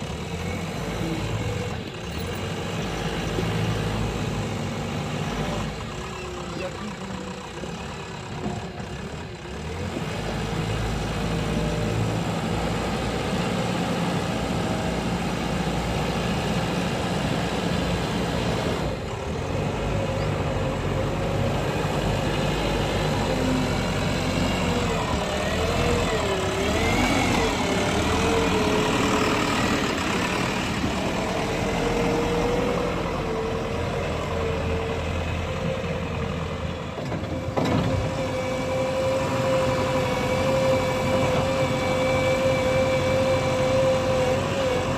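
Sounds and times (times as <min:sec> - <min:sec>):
diesel engine running: 0:00.0 - 0:44.9
wavering engine whine: 0:10.6 - 0:44.9.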